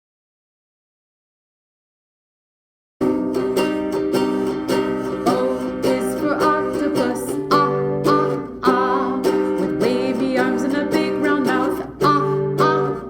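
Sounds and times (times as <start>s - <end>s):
strummed string instrument: 3.0s - 13.0s.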